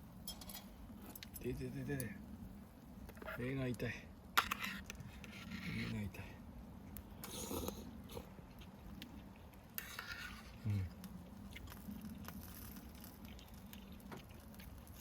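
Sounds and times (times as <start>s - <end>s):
person chewing food: 7.2s - 15.0s.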